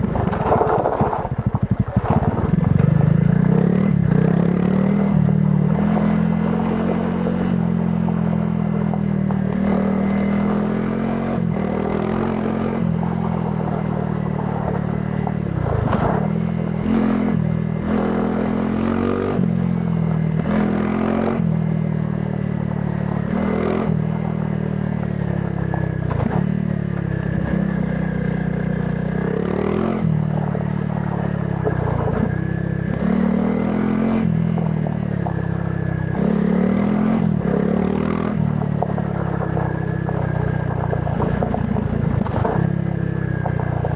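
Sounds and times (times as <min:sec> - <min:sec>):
knocks over rough ground: 0:00.0 - 0:03.1, 0:38.6 - 0:42.8
motorcycle engine revving: 0:00.0 - 0:43.9.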